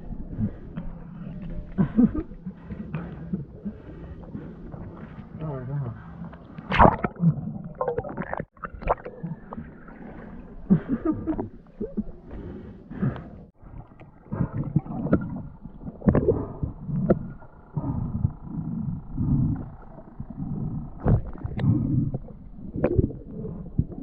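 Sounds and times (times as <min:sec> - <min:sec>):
muffled splashing and gurgling water: 0:00.0 - 0:24.0.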